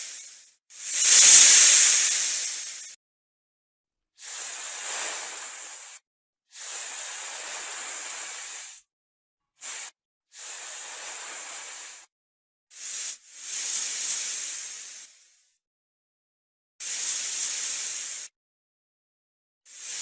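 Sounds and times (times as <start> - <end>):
snake hissing: 0.0 - 3.0, 4.2 - 6.0, 6.6 - 8.8, 9.6 - 12.1, 12.7 - 15.4, 16.8 - 18.3, 19.7 - 20.0.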